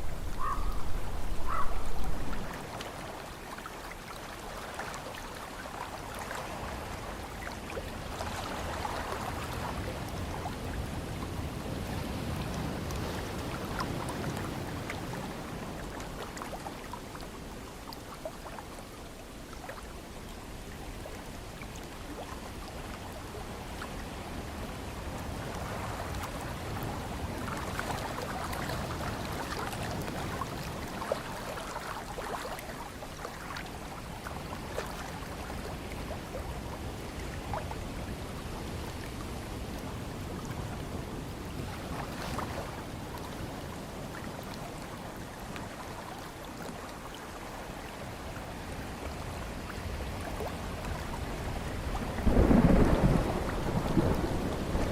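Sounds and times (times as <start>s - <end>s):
ocean waves washing ashore: 0.0s - 54.9s
small water splashes and trickles: 0.0s - 54.9s.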